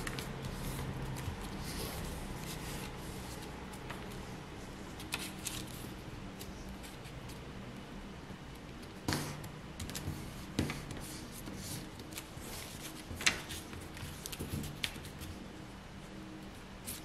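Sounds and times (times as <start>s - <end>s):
paper rustling and crinkling: 0.0s - 4.3s, 4.9s - 7.4s, 9.9s - 15.4s.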